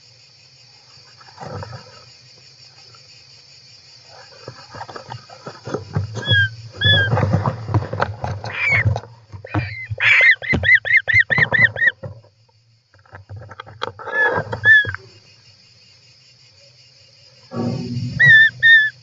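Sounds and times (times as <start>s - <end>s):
scratching and knocks in box: 4.2s - 12.3s, 13.0s - 15.0s
bird calls: 4.4s - 12.2s, 14.0s - 15.3s, 17.5s - 19.0s
steady low hum: 17.2s - 19.0s.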